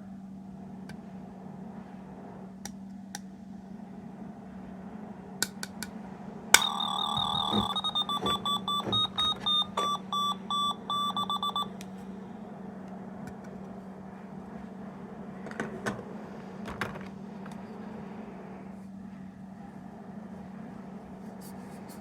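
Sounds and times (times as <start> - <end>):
low steady hum: 6.0 - 15.4
tinny electronic beeping melody: 6.6 - 11.7.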